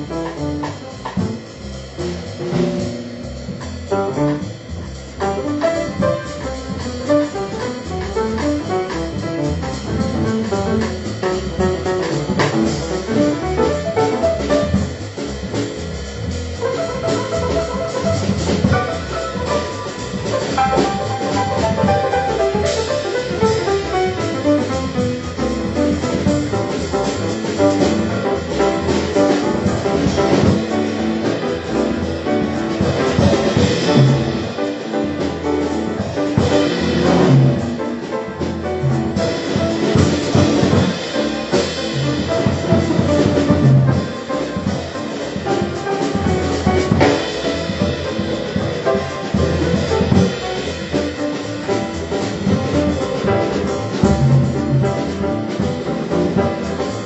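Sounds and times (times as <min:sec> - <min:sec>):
bass: 0:00.0 - 0:57.0
drum kit: 0:00.0 - 0:57.0
piano: 0:00.0 - 0:57.0.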